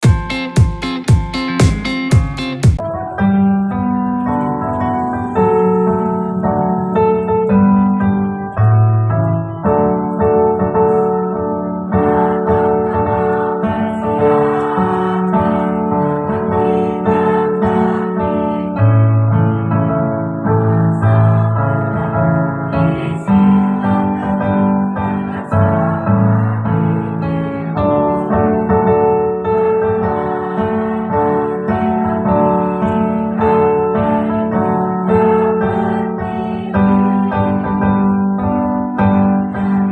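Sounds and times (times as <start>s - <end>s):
keyboard playing chords: 0.0s - 39.9s.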